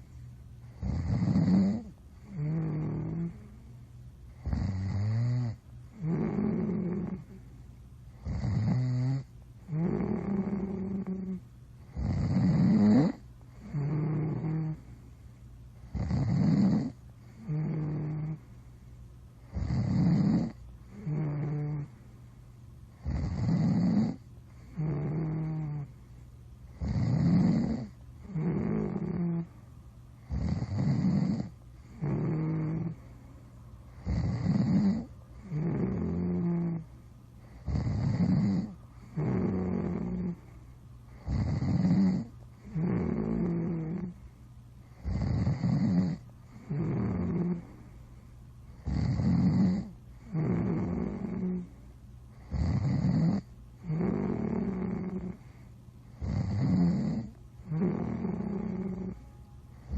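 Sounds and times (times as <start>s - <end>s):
person snoring: 0.7s - 3.6s, 4.4s - 7.4s, 8.2s - 14.9s, 15.8s - 18.4s, 19.5s - 21.9s, 23.0s - 25.9s, 26.8s - 29.5s, 30.3s - 33.1s, 34.0s - 36.9s, 37.5s - 40.5s, 41.1s - 44.2s, 44.9s - 47.9s, 48.8s - 51.8s, 52.4s - 59.9s.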